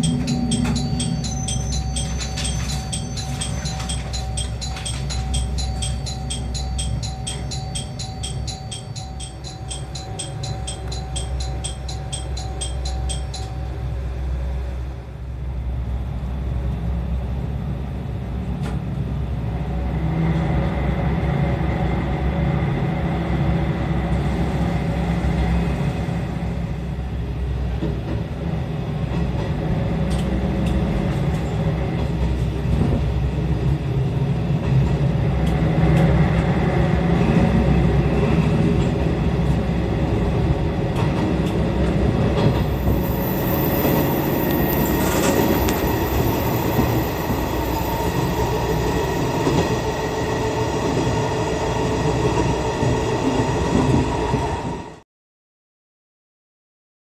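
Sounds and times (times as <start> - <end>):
repeating high chime: 0.0 - 13.7
diesel railcar engine drone: 0.0 - 55.0.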